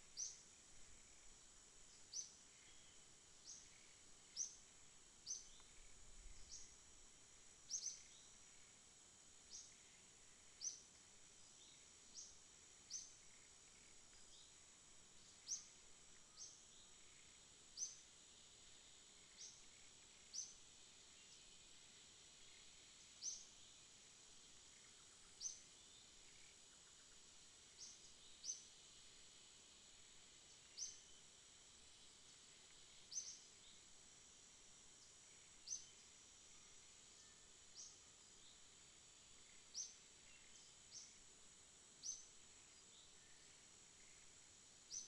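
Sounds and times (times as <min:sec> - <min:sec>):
insect drone: 0:00.0 - 0:45.0.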